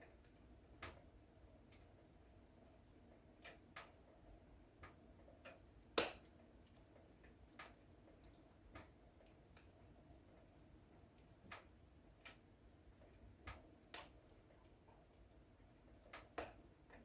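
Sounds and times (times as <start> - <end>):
wood fire crackling: 4.6 - 17.0
fire pops and snaps: 6.0 - 6.3.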